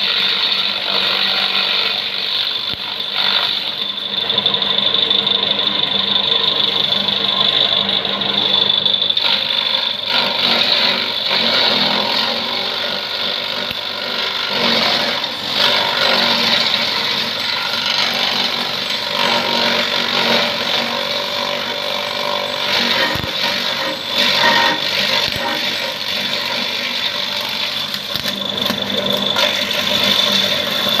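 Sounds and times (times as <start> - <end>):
electric grass chopper motor whining: 0.0 - 31.0.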